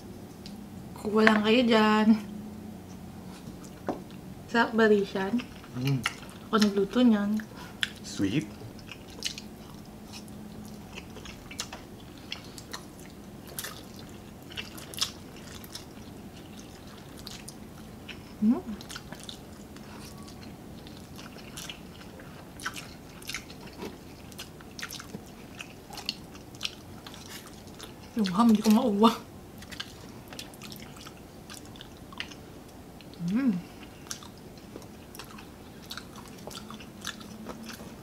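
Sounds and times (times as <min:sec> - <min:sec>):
people chewing and slurping: 0:05.4 - 0:06.8, 0:07.4 - 0:28.2, 0:33.0 - 0:38.0.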